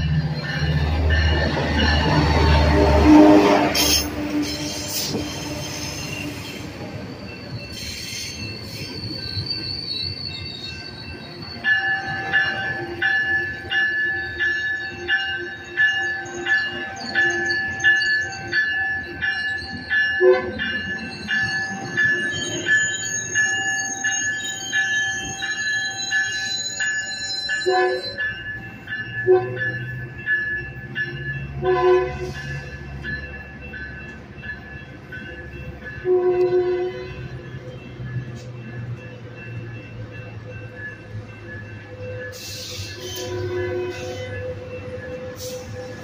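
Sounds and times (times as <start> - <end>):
diesel locomotive rumble: 0.0 - 15.1
train wheels and brakes squealing: 0.0 - 31.5, 32.1 - 36.1, 37.0 - 46.0
crossing warning bell ringing: 0.0 - 46.0.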